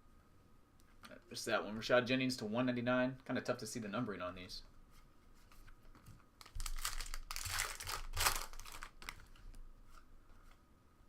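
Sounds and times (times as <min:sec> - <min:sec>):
wrapper crinkling and tearing: 0:06.4 - 0:09.4.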